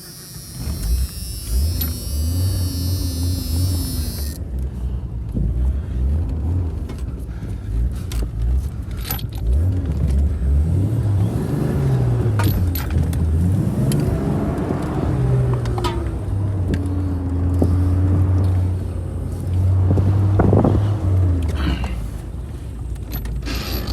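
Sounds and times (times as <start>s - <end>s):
vehicle engine revving roughly: 0.0s - 4.8s, 7.8s - 21.7s.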